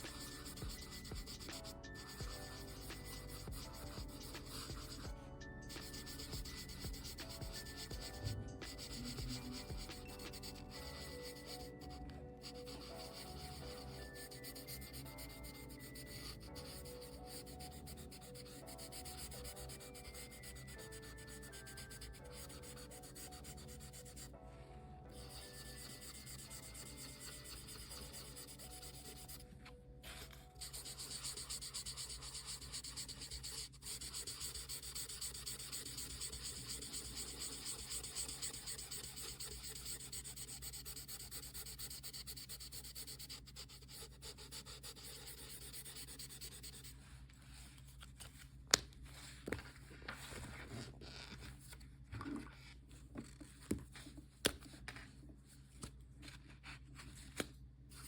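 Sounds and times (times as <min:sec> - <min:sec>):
marker rubbing on paper: 0:00.0 - 0:24.3, 0:25.1 - 0:29.4, 0:30.3 - 0:47.7.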